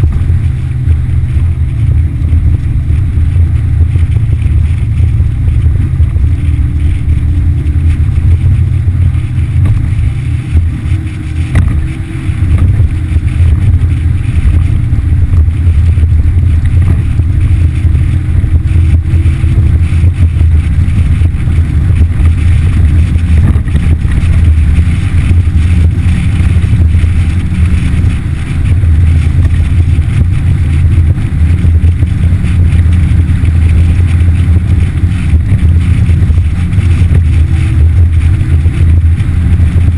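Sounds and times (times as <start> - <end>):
outboard motor droning: 0.0 - 39.9.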